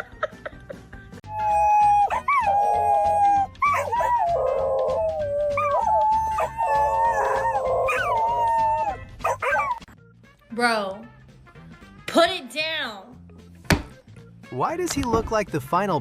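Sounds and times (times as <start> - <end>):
dog howling: 1.3 - 9.8.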